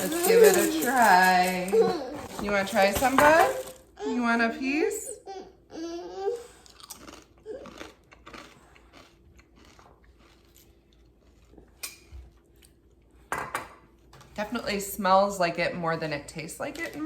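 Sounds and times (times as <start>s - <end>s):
chewing crunchy cereal: 6.5s - 13.0s.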